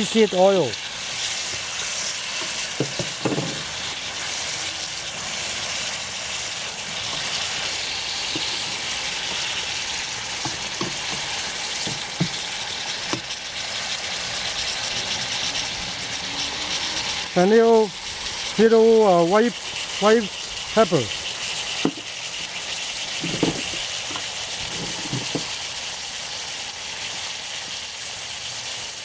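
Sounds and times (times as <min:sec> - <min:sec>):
vegetables sizzling in oil: 0:00.0 - 0:29.0
turner scraping and knocking pan: 0:01.2 - 0:04.4, 0:07.0 - 0:13.4, 0:21.7 - 0:25.6.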